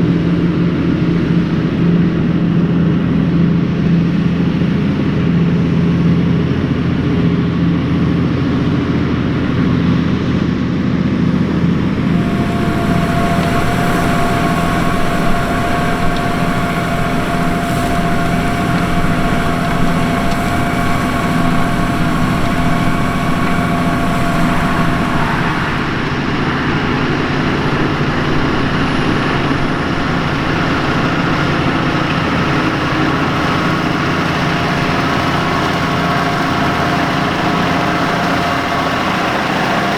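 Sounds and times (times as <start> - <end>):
tractor diesel engine running: 0.0 - 39.9
whine and hiss: 11.7 - 39.9.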